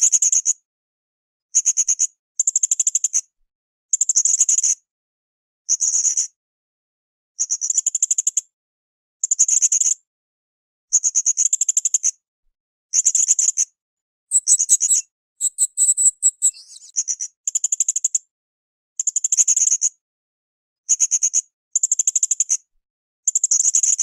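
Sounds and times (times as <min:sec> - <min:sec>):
parrot calling high notes: 0:14.3 - 0:16.9.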